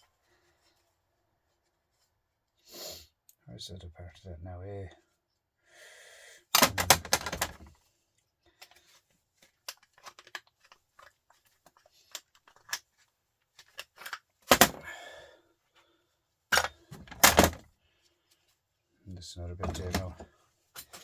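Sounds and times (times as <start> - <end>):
tools clicking and scraping: 6.6 - 7.7, 9.5 - 12.9, 13.6 - 14.8, 16.5 - 17.6, 19.6 - 20.2, 20.8 - 21.0.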